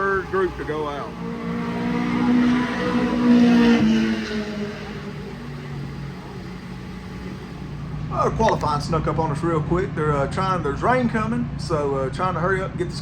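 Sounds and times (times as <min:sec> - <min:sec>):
race car passing by: 0:00.0 - 0:10.8.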